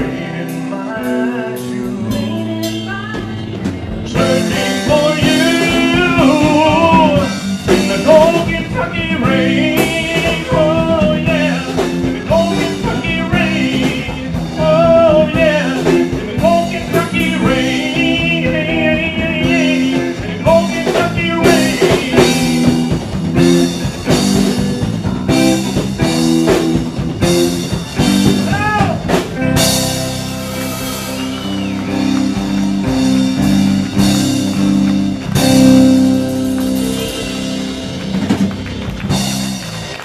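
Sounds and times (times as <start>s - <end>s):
live band playing: 0.0s - 40.0s.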